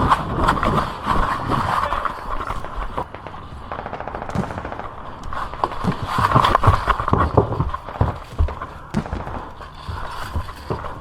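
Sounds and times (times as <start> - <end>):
airsoft guns full-auto rattle: 0.0 - 11.0
sharp knocks and thuds: 4.2 - 11.0.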